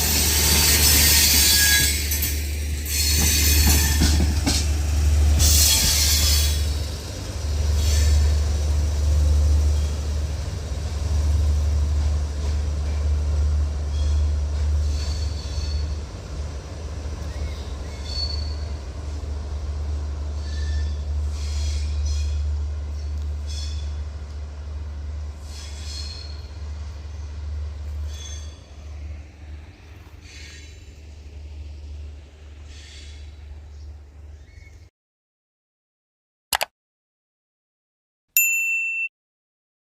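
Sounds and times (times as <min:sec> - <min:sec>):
train low rumble: 0:00.0 - 0:34.9
high wheel squeals: 0:00.2 - 0:04.2, 0:05.4 - 0:06.8, 0:13.9 - 0:16.0, 0:17.3 - 0:18.8, 0:20.4 - 0:22.4, 0:25.4 - 0:26.6, 0:28.0 - 0:28.8.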